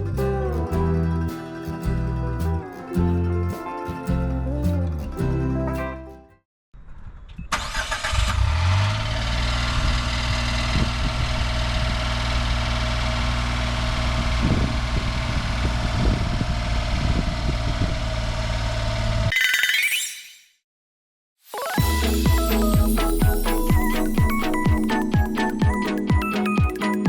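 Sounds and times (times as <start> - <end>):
car engine starting and idling: 7.5 - 19.3.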